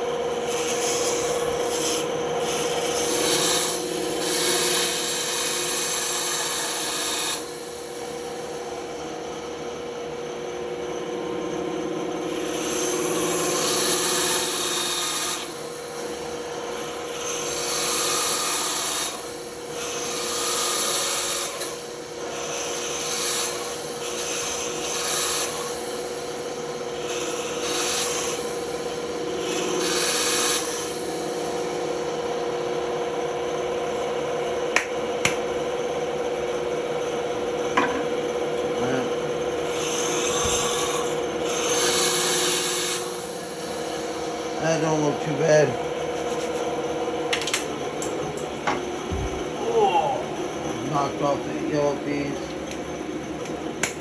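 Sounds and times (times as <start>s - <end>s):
saw blade cutting wood: 0.0s - 7.9s, 12.3s - 16.2s, 16.8s - 26.1s, 27.0s - 31.6s, 39.7s - 46.7s
band saw humming: 0.0s - 54.0s.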